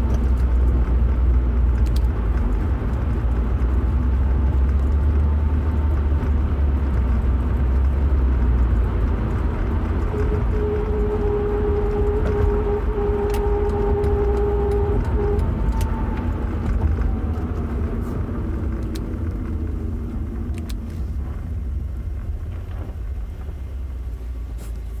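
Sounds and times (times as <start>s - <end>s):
car engine rumble: 0.0s - 25.0s
steady whine: 9.1s - 22.8s.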